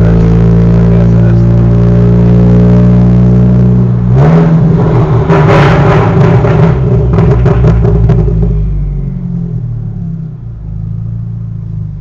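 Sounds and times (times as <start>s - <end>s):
exhaust crackles and pops: 4.2s - 9.0s.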